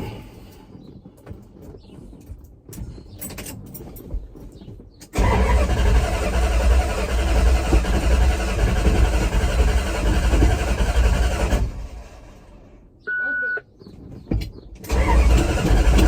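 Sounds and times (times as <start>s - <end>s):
truck engine running: 5.2s - 12.8s, 14.9s - 16.0s.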